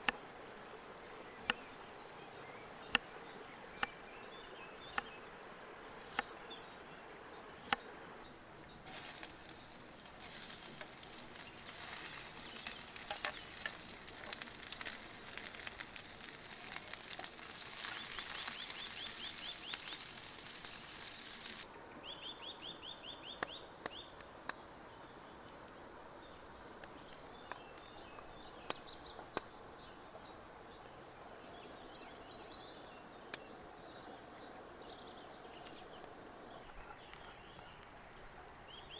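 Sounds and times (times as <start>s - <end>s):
food sizzling in a hot pan: 8.8s - 21.6s.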